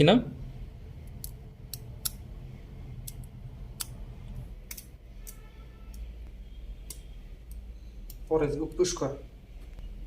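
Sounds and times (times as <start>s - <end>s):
low steady hum: 0.0s - 10.0s
sharp clicks and taps: 1.0s - 2.3s, 3.0s - 4.0s, 4.6s - 8.9s.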